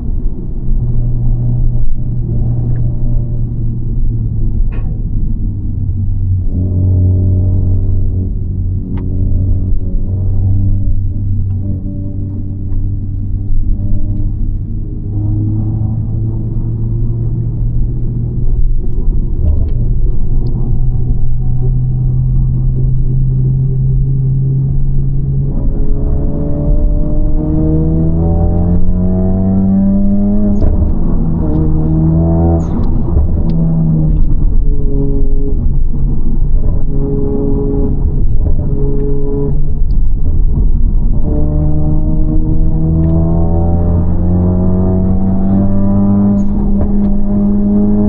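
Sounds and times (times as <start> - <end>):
car engine revving from cabin: 20.5 - 48.0.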